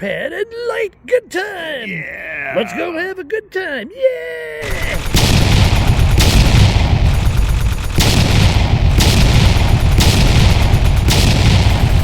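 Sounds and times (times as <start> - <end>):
fireworks crackling and popping: 4.6 - 12.0
sharp firework bangs: 4.6 - 12.0
low rumble: 4.7 - 12.0.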